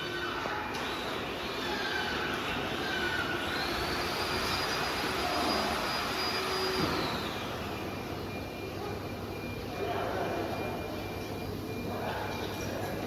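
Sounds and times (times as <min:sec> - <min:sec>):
router spindle whine: 0:00.0 - 0:08.4
rushing machine noise: 0:00.0 - 0:08.4.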